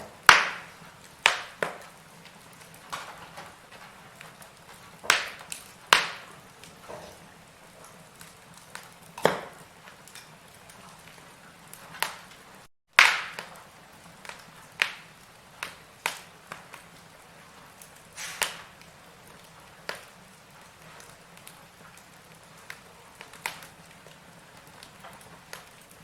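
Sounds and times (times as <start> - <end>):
firewood crackling and popping: 0.0 - 26.0.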